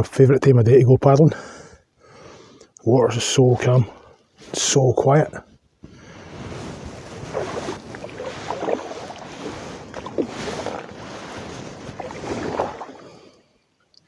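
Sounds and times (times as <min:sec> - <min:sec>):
paddle strokes splashing water: 0:05.9 - 0:13.6.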